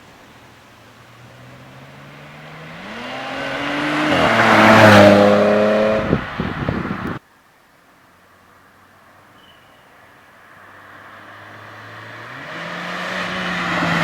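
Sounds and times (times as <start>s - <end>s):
car engine accelerating: 0.0s - 7.2s, 10.6s - 14.0s.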